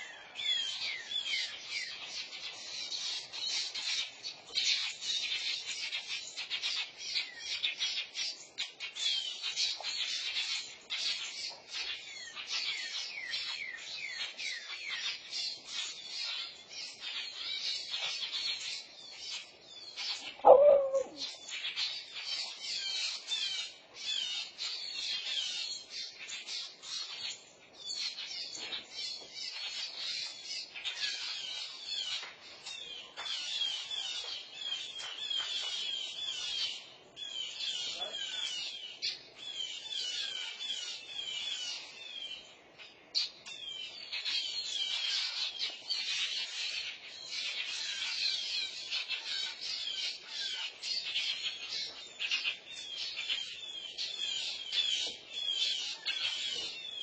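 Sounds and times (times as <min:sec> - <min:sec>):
songbirds chirping rapidly: 0:00.0 - 0:57.0
bird cry falling in pitch: 0:20.3 - 0:21.3.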